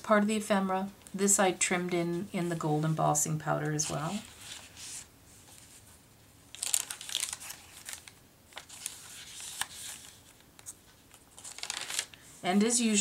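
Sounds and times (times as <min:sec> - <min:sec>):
paper rustling and crinkling: 0:03.7 - 0:12.4.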